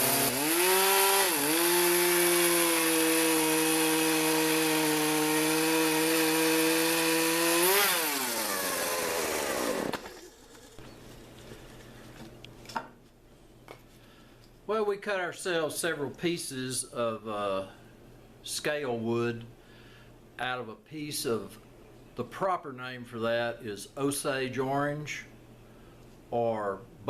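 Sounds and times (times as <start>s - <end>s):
electric saw whine: 0.0s - 11.2s.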